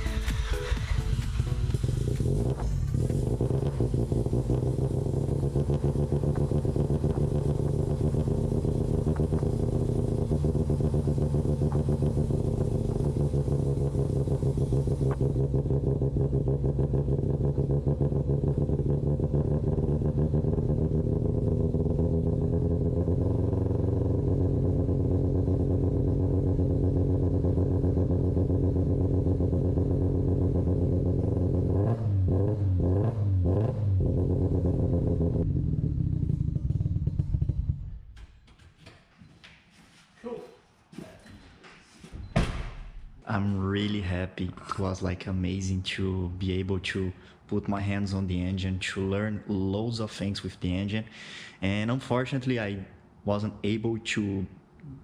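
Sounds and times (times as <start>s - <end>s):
rotary engine idling: 0.0s - 26.5s
engine throttle blips: 0.0s - 38.2s.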